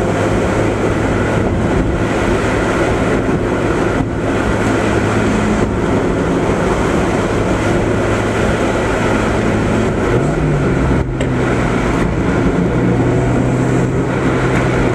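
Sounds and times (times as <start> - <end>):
car engine cruising: 0.0 - 14.9
road noise: 0.0 - 14.9.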